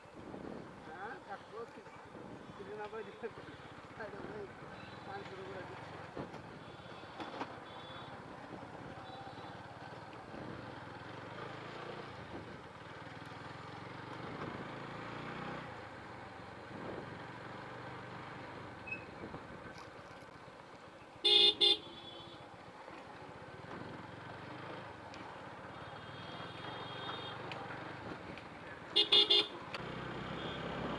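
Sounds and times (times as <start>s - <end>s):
road noise: 0.0s - 30.9s
motorcycle horn beeps: 21.2s - 22.2s, 29.0s - 29.6s, 30.4s - 30.8s
motorcycle engine: 29.0s - 30.9s.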